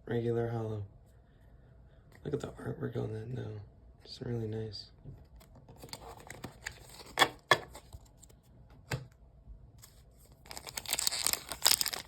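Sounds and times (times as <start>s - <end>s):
foil wrapper crinkling: 10.3s - 12.0s.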